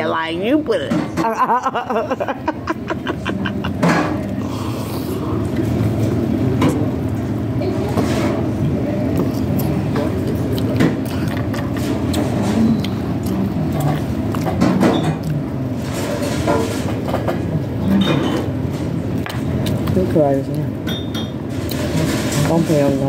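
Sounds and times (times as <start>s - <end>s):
low room rumble: 0.0s - 23.0s
wet chewing and lettuce crunching: 9.0s - 15.5s, 19.1s - 20.7s.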